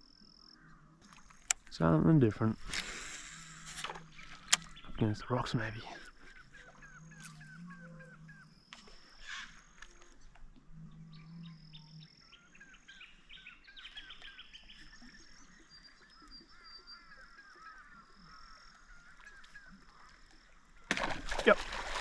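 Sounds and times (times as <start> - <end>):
birds chirping: 0.0 - 21.6
sharp knocks or splashes: 20.9 - 22.0.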